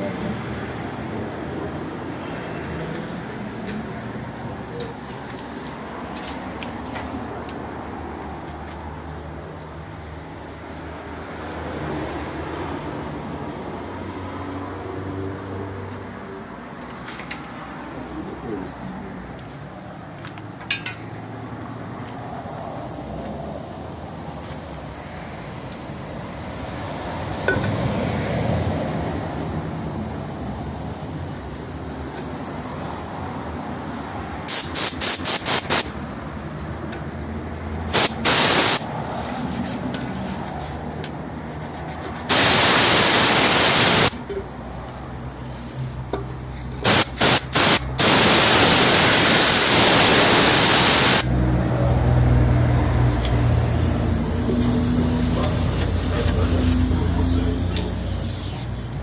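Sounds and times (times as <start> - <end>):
pressurized spray hissing: 29.2 - 36.6, 37.8 - 39.8, 41.7 - 46.2, 46.8 - 51.3, 53.0 - 59.0.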